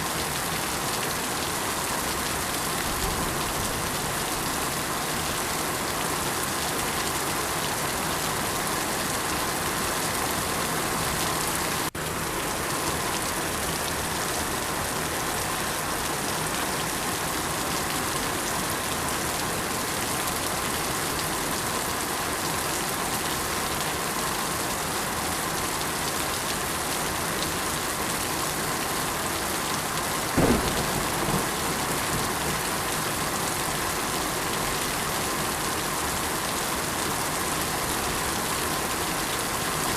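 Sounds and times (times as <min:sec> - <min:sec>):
steady rain falling: 0:00.0 - 0:39.9
low thump: 0:30.4 - 0:32.6.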